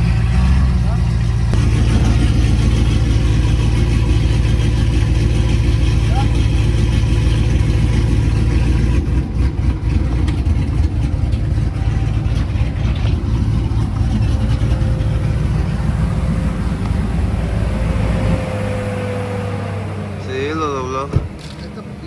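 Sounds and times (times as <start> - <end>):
truck engine rumbling: 0.0 - 22.0.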